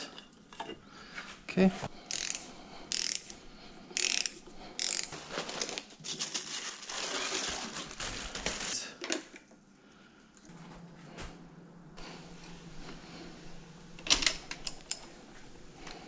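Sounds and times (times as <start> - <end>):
socket ratchet clicking: 2.1 - 3.3, 4.0 - 5.1.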